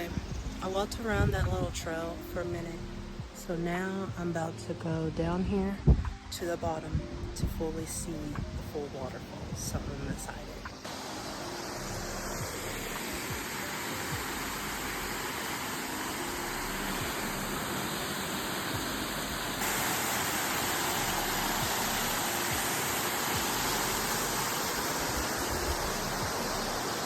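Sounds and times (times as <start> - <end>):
waterfall rushing: 10.7 - 27.0.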